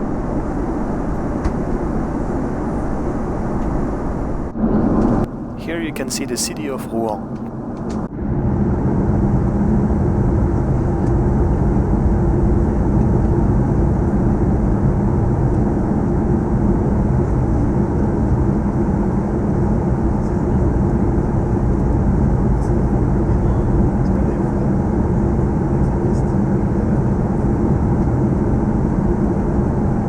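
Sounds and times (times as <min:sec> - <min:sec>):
airplane cabin drone: 0:00.0 - 0:30.0.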